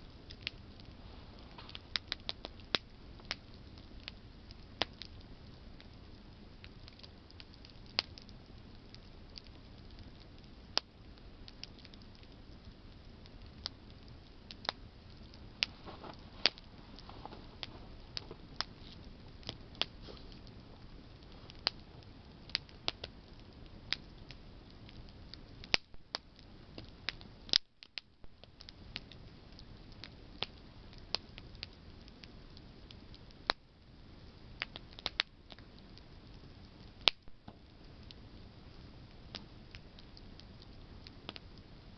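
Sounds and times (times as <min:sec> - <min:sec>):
hiss of flames: 0:00.0 - 0:27.6
campfire crackling: 0:00.0 - 0:41.9.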